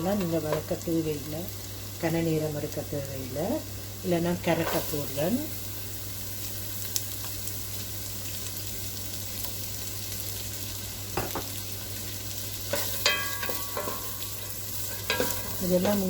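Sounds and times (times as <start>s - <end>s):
vegetables sizzling in a pan: 0.0s - 16.0s
spoon knocking against a pan: 11.2s - 11.6s, 12.7s - 14.1s.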